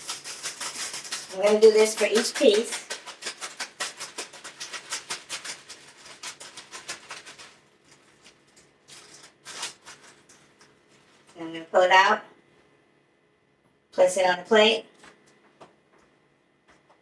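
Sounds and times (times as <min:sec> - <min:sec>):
chicken tossed in flour: 0:00.0 - 0:11.4.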